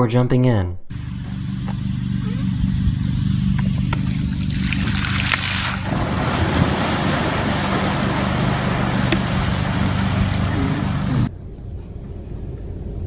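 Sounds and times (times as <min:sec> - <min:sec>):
steady low hum: 0:00.8 - 0:13.0
water splashing and churning: 0:04.0 - 0:11.3.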